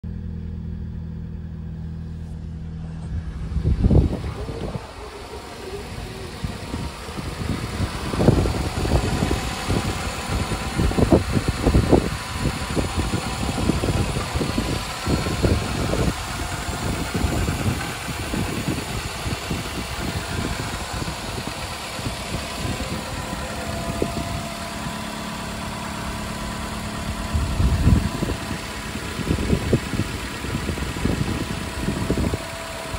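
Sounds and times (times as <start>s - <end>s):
car engine idling: 0.0s - 32.9s
gusty low rumble: 0.0s - 32.9s.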